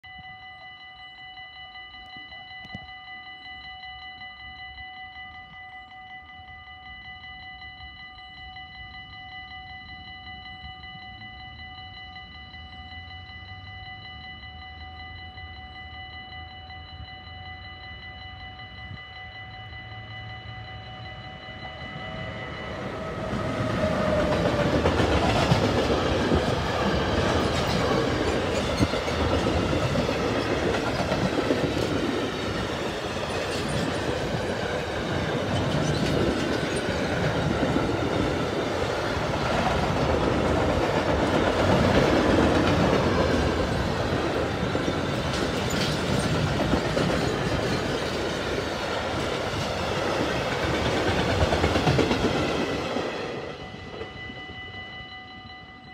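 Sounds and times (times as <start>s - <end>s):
level crossing warning bell: 0.0s - 55.9s
freight train wheels clattering: 22.0s - 54.1s.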